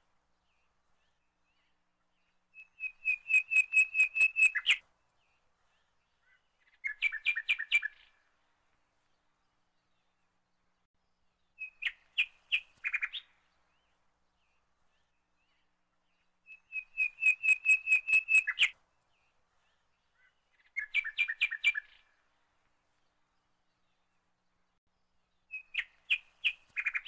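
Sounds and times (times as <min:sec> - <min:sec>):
songbird trilling high chirps: 0:01.0 - 0:04.8, 0:06.2 - 0:08.2, 0:11.5 - 0:13.4, 0:14.9 - 0:18.8, 0:20.1 - 0:22.2, 0:25.4 - 0:27.0.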